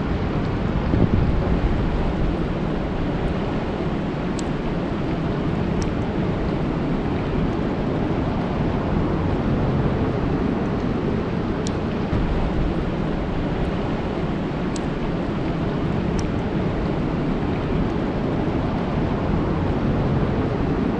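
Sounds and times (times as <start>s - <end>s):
rain falling on a lake: 0.3s - 20.9s
faint ticks: 14.7s - 15.0s.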